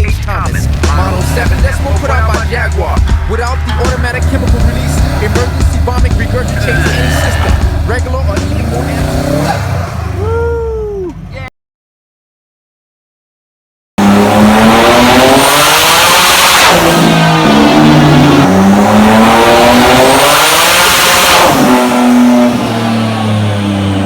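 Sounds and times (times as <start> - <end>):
car engine revving hard: 0.0 - 10.4, 14.0 - 24.0.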